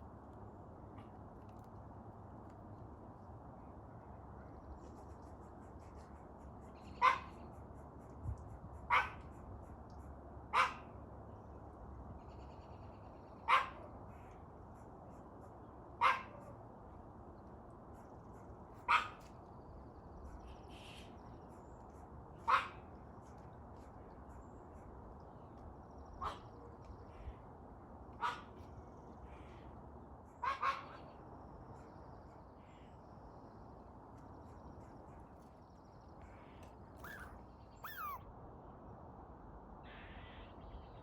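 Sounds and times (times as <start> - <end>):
dog barking: 7.0 - 7.3, 8.9 - 9.2, 10.6 - 10.8, 13.5 - 13.9, 16.0 - 16.5, 18.9 - 19.2, 22.5 - 22.8, 28.2 - 28.5, 30.4 - 31.0, 37.0 - 38.2.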